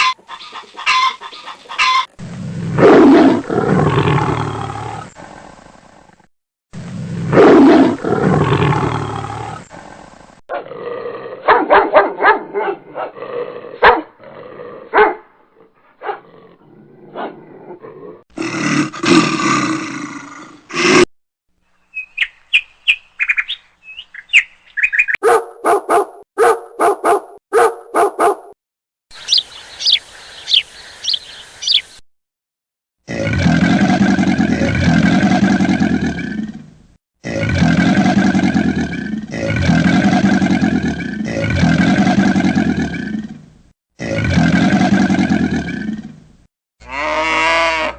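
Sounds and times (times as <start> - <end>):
bird-like chirps: 0.0 - 2.1, 21.7 - 25.2, 29.1 - 32.0
fast repeated animal calls: 0.0 - 2.2, 29.2 - 31.9
dog barking and whimpering: 11.4 - 13.2, 13.8 - 14.1, 14.9 - 15.3, 16.0 - 16.3, 25.2 - 28.6.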